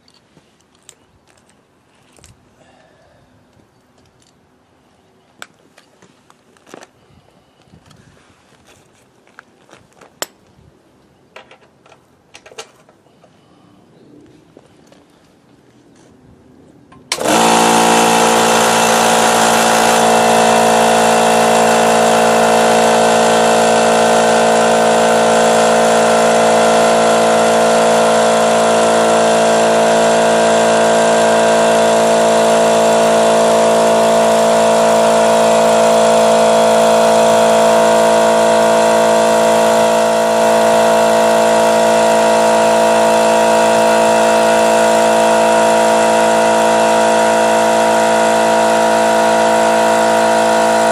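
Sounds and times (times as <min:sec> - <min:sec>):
air compressor running: 0:17.0 - 0:50.9.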